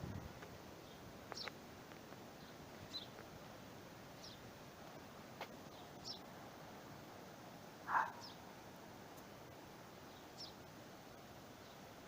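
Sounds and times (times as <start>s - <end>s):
bird chirping: 2.4s - 3.2s, 4.2s - 4.5s, 5.7s - 6.3s, 7.9s - 8.4s, 10.0s - 10.6s.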